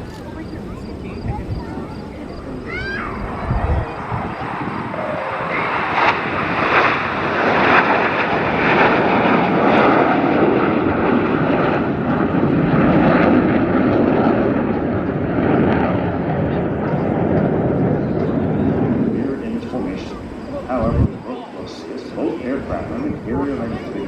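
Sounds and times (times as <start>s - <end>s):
jet engines passing: 0.0s - 24.0s.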